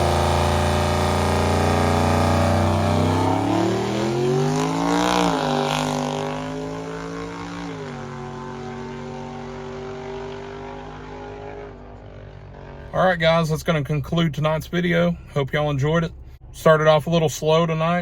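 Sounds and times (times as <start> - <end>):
drag racing car accelerating: 0.0 - 14.0.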